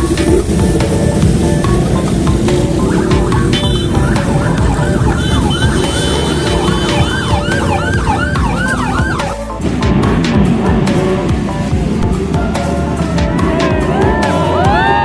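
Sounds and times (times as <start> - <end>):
siren yelping: 0.0 - 9.5
loud background music: 0.0 - 15.0.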